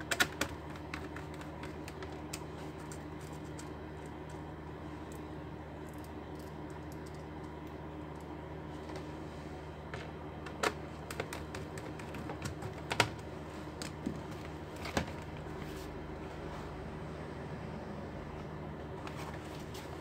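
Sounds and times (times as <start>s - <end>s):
laptop keys clicking: 0.0s - 4.4s
steady low hum: 0.0s - 20.0s.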